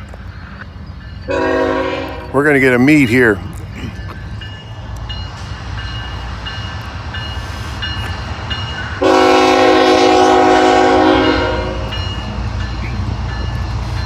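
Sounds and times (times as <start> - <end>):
low rumble of moving train: 0.0 - 14.0
locomotive air horn chord: 1.3 - 2.3, 9.0 - 12.2.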